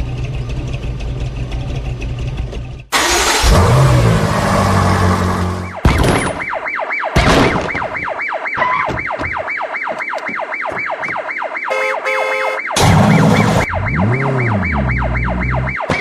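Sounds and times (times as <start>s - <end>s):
engine noise bursts: 0.0s - 5.8s, 12.7s - 16.0s
yelp siren: 4.7s - 16.0s
horn-like steady tone: 11.7s - 12.7s.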